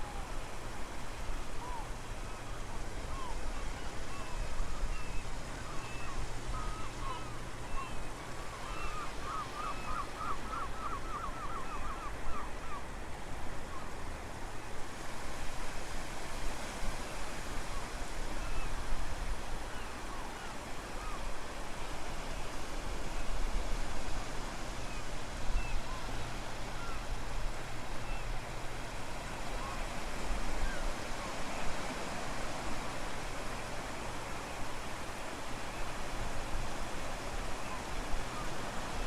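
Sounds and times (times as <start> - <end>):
ocean waves washing: 12.8 - 39.0.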